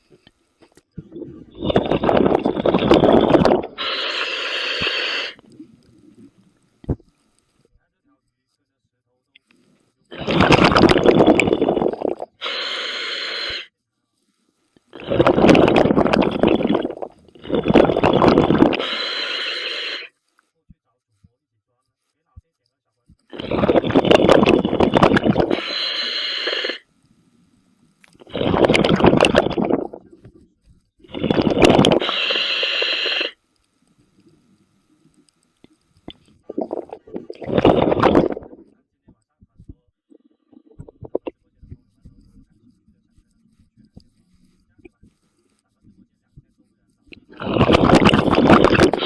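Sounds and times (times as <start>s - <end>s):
exhaled bubbles underwater: 1.0s - 4.2s, 10.1s - 12.4s, 15.0s - 19.0s, 23.4s - 26.0s, 28.2s - 30.4s, 31.1s - 33.1s, 36.1s - 38.6s, 47.2s - 49.0s
regulator inhalation hiss: 1.6s - 6.3s, 10.2s - 13.7s, 14.9s - 20.1s, 23.3s - 26.9s, 31.1s - 33.4s.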